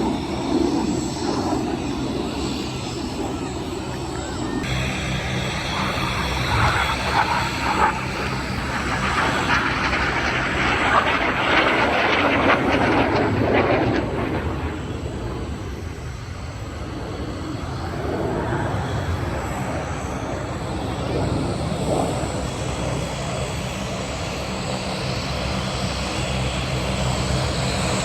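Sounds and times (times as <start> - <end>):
aircraft engine flying past: 0.0 - 28.0.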